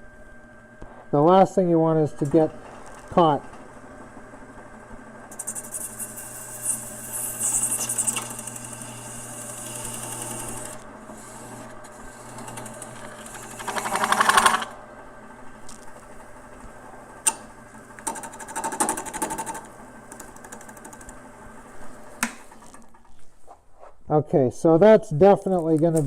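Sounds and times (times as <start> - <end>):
wood lathe motor hum: 1.9 - 22.8.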